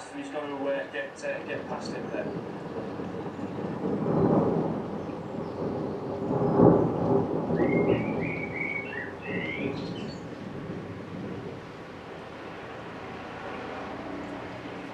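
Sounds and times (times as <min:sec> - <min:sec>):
falling rain: 0:00.0 - 0:14.9
thunder rumbling: 0:00.8 - 0:14.9.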